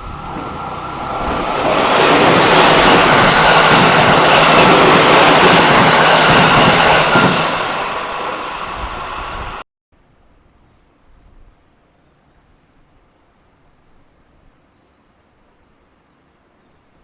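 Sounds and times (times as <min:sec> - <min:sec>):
train passing at speed: 0:00.0 - 0:09.6.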